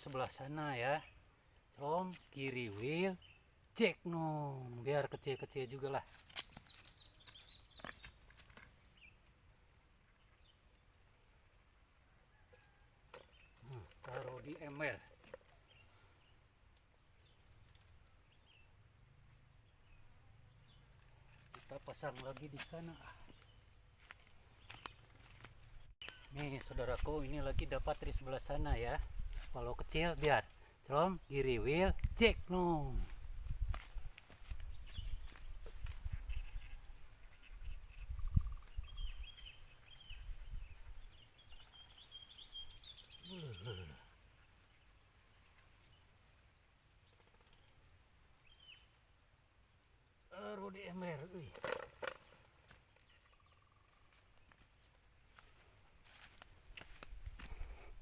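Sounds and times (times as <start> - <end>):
faint bird chirps: 0.0 - 9.3, 12.2 - 16.5, 17.1 - 29.0, 34.7 - 46.4, 47.0 - 49.5, 50.3 - 54.9.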